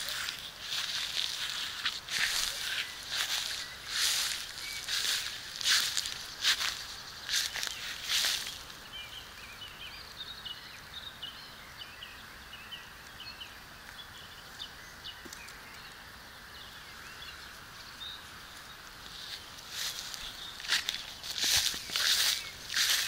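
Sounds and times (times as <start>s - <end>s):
footsteps in dry grass: 0.0s - 8.9s, 17.8s - 23.0s
small bird chirping: 0.0s - 23.0s
steady outdoor hiss: 0.0s - 23.0s.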